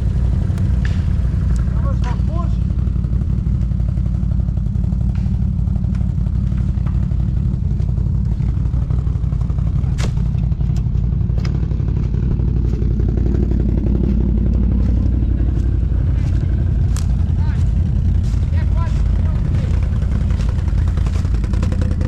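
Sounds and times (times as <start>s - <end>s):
atv engine running: 0.0s - 22.0s
sharp knocks and clatter: 0.6s - 2.2s, 4.8s - 22.0s.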